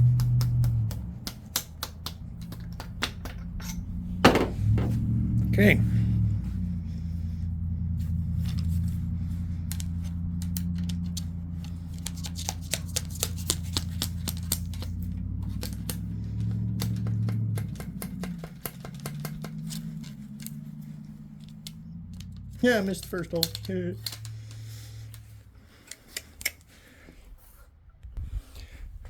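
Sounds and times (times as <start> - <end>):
small sharp clicks and taps: 0.0 - 3.5, 9.6 - 20.6, 21.4 - 26.6
steady low hum: 0.0 - 27.3.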